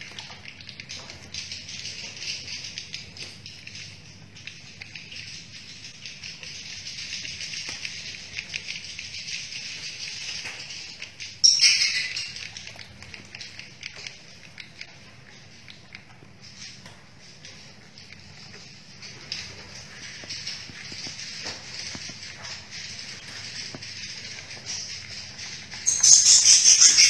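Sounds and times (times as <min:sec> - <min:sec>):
steady low hum: 0:00.0 - 0:27.0
swiftlets twittering and clicking: 0:00.0 - 0:27.0
loud burst of close chirping: 0:25.8 - 0:27.0.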